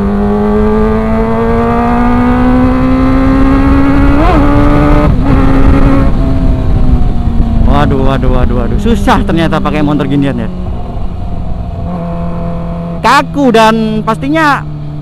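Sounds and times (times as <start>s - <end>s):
wind on microphone: 0.0s - 9.0s
motorcycle engine accelerating: 0.0s - 15.0s.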